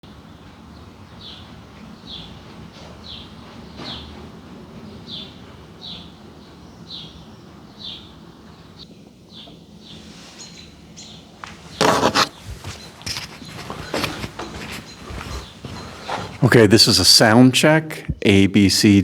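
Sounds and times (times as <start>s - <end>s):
bird calling: 9.9s - 16.6s.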